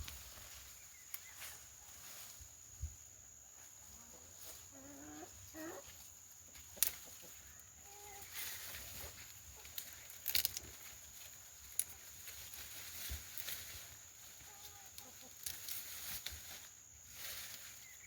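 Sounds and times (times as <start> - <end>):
chickens clucking: 0.0 - 16.8
rustling: 5.9 - 18.0.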